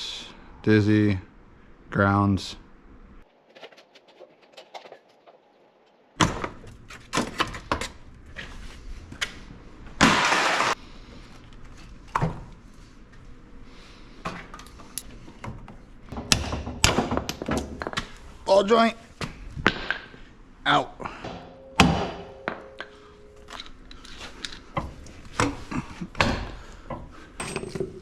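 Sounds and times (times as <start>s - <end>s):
hand tools clanking on metal: 21.1s - 28.0s.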